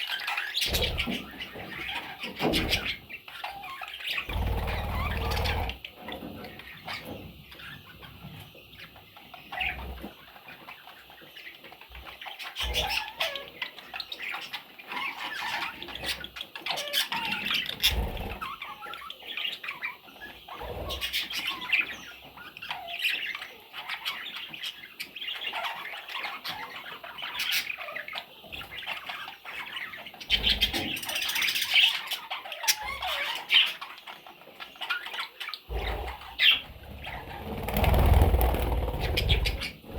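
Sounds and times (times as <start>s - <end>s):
budgerigars chirping: 0.0s - 39.9s
wings fluttering: 4.3s - 5.8s, 35.7s - 39.9s.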